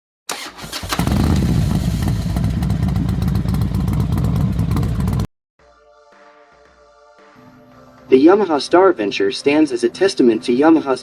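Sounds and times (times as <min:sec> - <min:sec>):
motorcycle engine running: 0:01.0 - 0:05.3.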